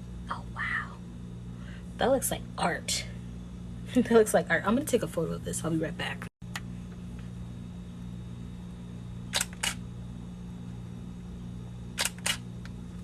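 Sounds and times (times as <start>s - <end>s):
steady low hum: 0.0s - 13.0s
camera shutter clicking: 9.3s - 9.8s, 12.0s - 12.4s.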